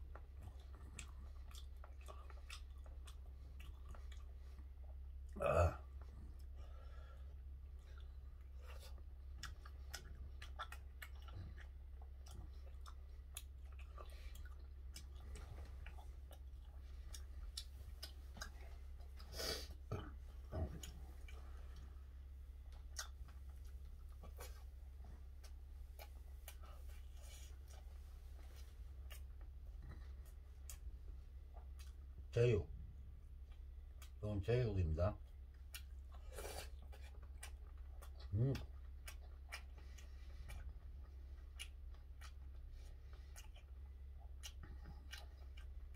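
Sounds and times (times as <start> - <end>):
person chewing food: 0.0 - 34.2, 35.2 - 45.9
steady low hum: 0.0 - 45.9
mouth clicks and smacks: 22.6 - 30.8.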